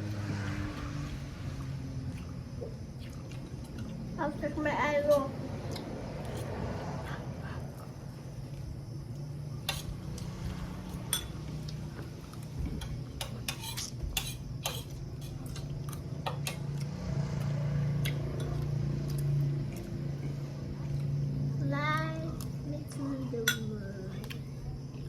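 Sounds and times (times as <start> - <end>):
steady low hum: 0.0 - 25.0
cutlery clinking on plates: 11.0 - 11.4, 12.8 - 16.8.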